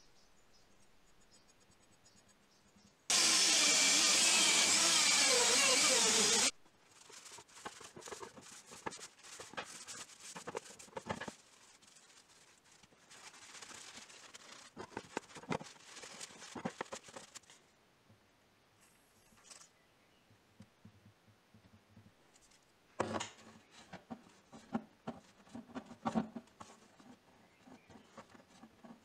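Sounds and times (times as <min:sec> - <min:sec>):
power tool whirring: 0:03.1 - 0:06.5
paper towel rubbing metal: 0:04.5 - 0:17.4.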